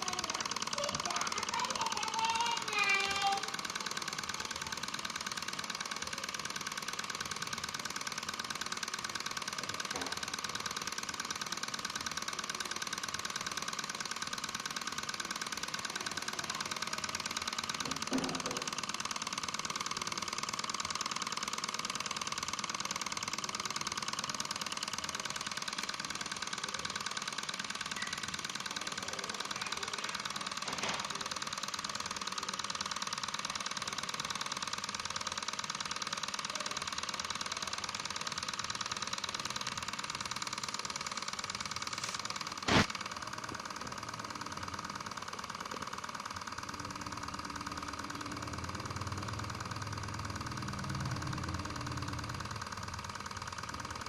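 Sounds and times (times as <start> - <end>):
stirling engine whirring: 0.0 - 43.1.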